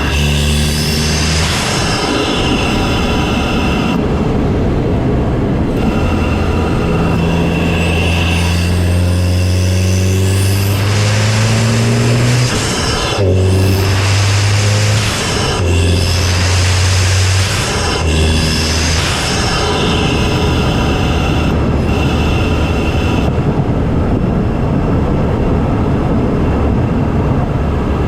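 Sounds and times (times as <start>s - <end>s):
car engine accelerating: 0.0s - 28.0s
faint rising whistle: 5.7s - 23.3s.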